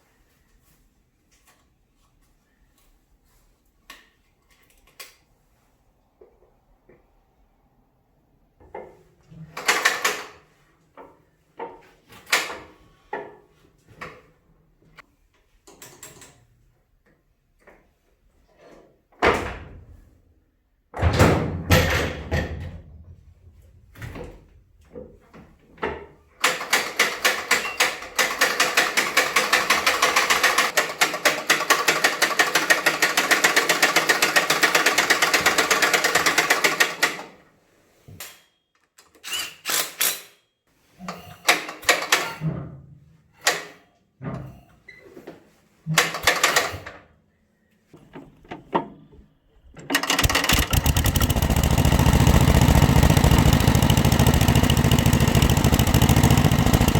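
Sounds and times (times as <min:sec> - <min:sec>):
fast mechanical clicking: 0:49.9 - 0:56.9.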